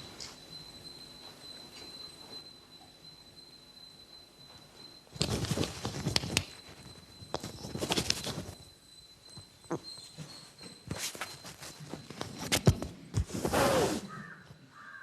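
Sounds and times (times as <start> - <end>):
faint high-pitched tone: 0.0 - 14.8
rustling and scuffing: 10.2 - 14.2.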